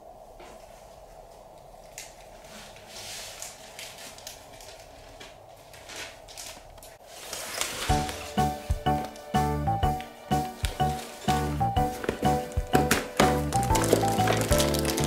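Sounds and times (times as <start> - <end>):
faint steady hum: 0.0 - 7.2
packaging rustling: 1.9 - 8.6, 10.6 - 15.0
music with clear notes: 7.8 - 15.0.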